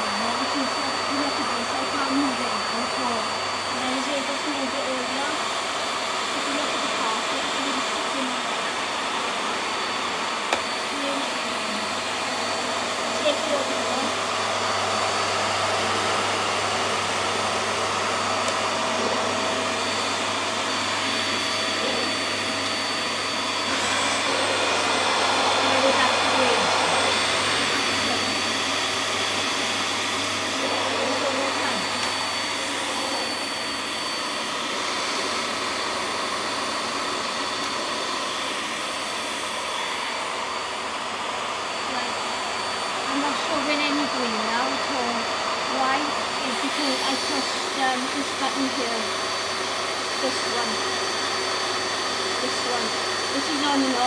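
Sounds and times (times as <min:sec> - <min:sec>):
vacuum cleaner running on carpet: 0:00.0 - 0:54.0.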